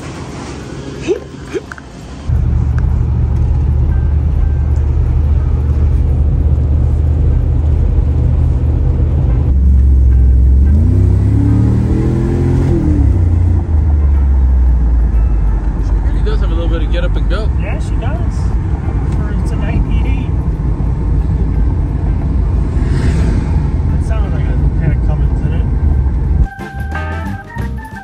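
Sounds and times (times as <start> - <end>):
road noise: 0.0 - 27.6
car engine running: 1.7 - 26.5.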